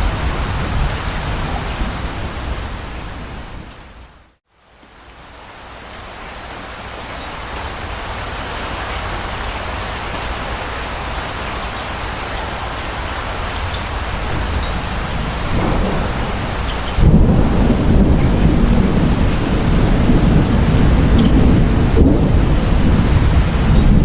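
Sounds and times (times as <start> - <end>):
thunder rumbling: 0.0 - 3.7, 13.4 - 24.0
individual raindrops: 0.0 - 24.0
steady rain falling: 0.0 - 24.0.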